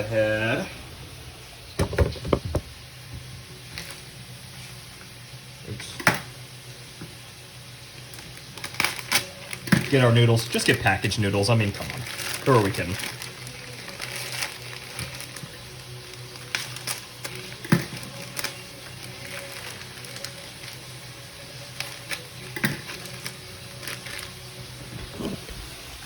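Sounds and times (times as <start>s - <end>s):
vegetables sizzling in a wok: 0.0s - 25.0s
sharp knocks and clatters: 1.8s - 2.7s.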